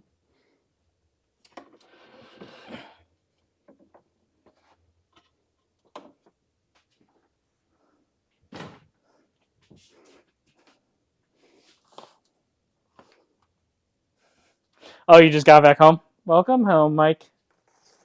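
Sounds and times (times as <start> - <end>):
rustling and scraping: 1.6 - 2.9, 3.7 - 7.4, 17.5 - 18.0.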